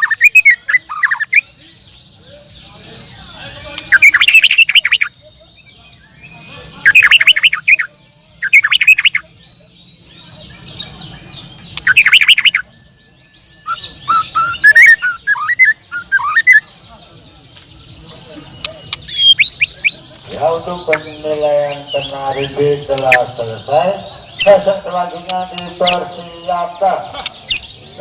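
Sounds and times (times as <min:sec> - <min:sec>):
canaries singing trills: 0:00.0 - 0:28.0.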